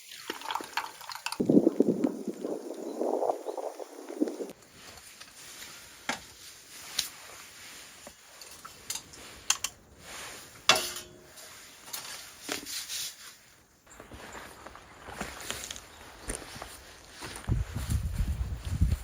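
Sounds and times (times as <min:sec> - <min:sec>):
camp dishes clinking: 0:08.0 - 0:09.9, 0:10.5 - 0:12.7.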